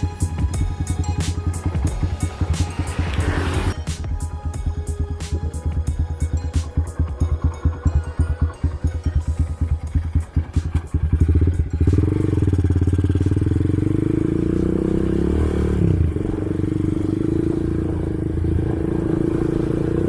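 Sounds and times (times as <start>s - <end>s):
motorcycle engine rumbling: 0.0s - 3.9s, 5.7s - 20.0s.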